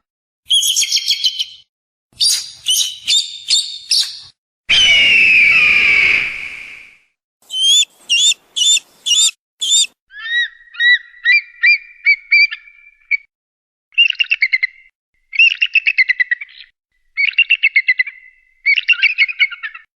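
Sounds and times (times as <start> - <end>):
bird of prey calls: 2.2 - 5.7, 7.5 - 13.2.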